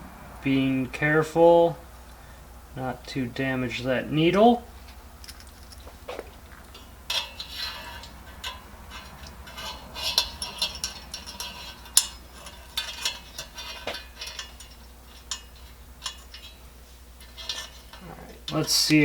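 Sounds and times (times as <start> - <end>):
metal stove parts clicking: 4.3 - 19.0.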